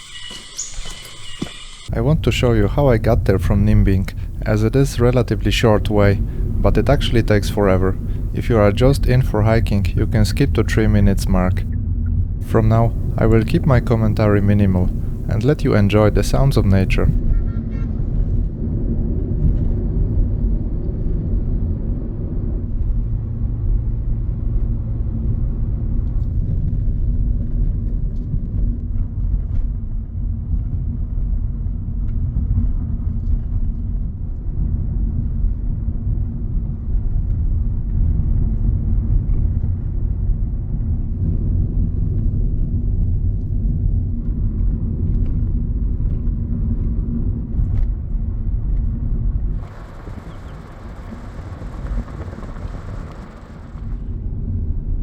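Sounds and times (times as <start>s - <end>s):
steady hum: 0.0s - 11.7s, 12.4s - 17.2s, 48.9s - 54.3s
vehicle engine and road noise: 1.8s - 11.7s, 12.5s - 17.2s, 47.2s - 54.2s.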